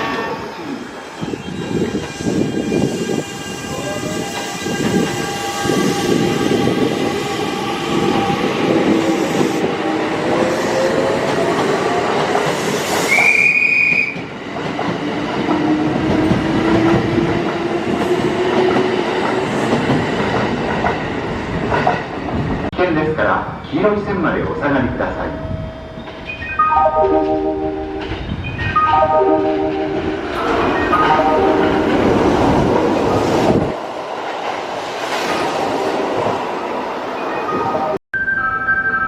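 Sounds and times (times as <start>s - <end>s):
train horn blast: 27.0s - 28.2s, 28.9s - 30.4s, 31.0s - 32.2s.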